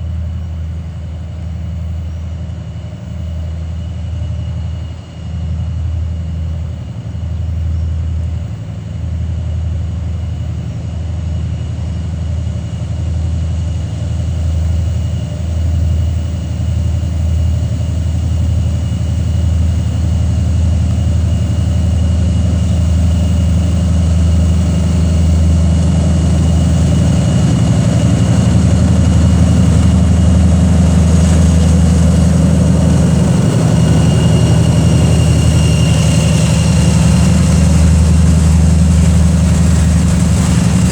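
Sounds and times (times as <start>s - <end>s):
diesel locomotive engine throbbing: 0.0s - 40.9s
turbocharger whistle: 25.4s - 40.9s.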